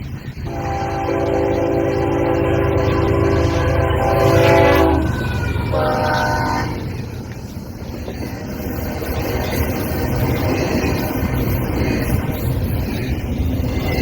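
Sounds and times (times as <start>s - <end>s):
passing train rumble: 0.0s - 14.0s
locomotive air horn: 0.4s - 6.9s.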